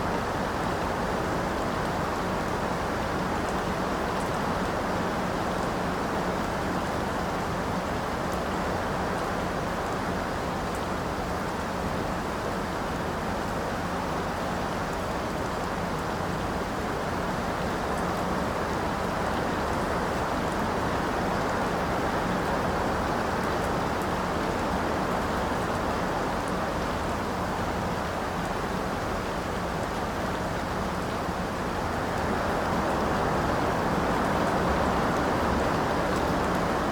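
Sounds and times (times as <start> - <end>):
steady rainfall: 0.0 - 36.9.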